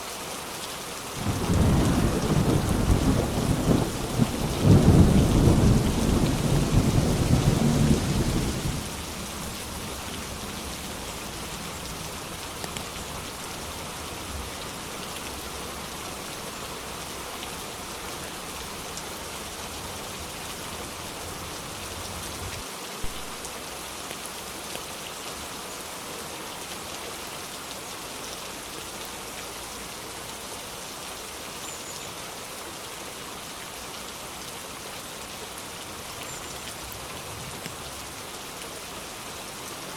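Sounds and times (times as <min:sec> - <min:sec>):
steady rain falling: 0:00.0 - 0:39.9
low thunder rumble: 0:01.2 - 0:09.0.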